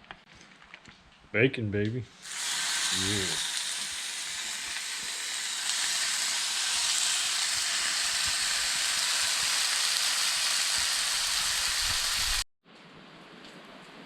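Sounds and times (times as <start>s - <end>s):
bacon sizzling in a pan: 2.2s - 12.5s.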